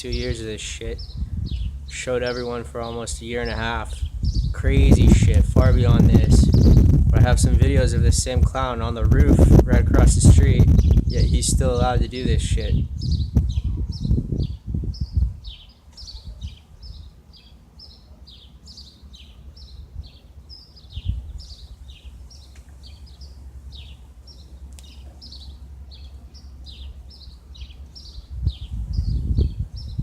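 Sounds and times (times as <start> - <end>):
bird chirping: 0.0 - 7.0, 12.1 - 30.0
low steady rumble: 0.0 - 15.7, 19.0 - 30.0
loud low thumps: 4.2 - 7.8.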